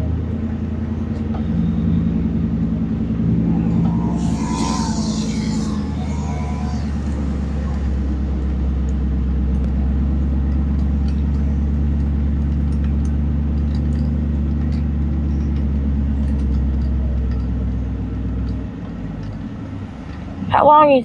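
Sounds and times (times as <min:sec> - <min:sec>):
road noise: 0:00.0 - 0:21.0
truck engine drone: 0:00.0 - 0:21.0.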